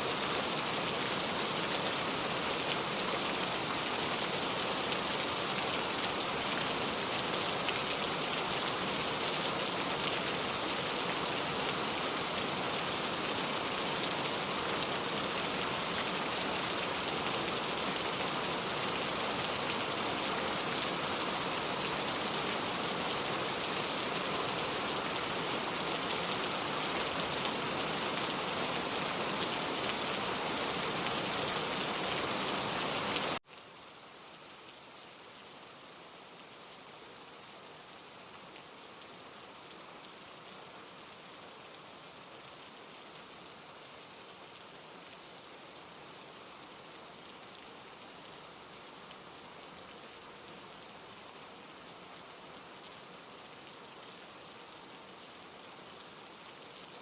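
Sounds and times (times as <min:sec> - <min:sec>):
heavy rain pouring: 0:00.0 - 0:33.4.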